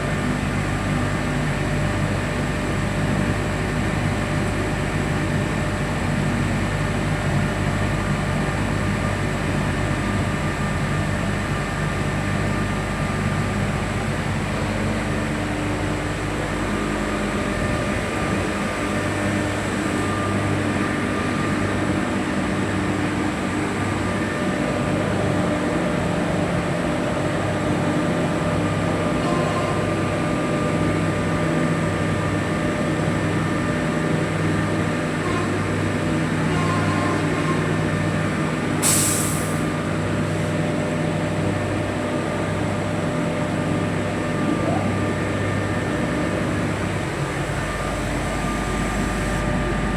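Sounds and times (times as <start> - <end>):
locomotive engine drone: 0.0 - 49.9
humming and whining tones: 44.2 - 49.9.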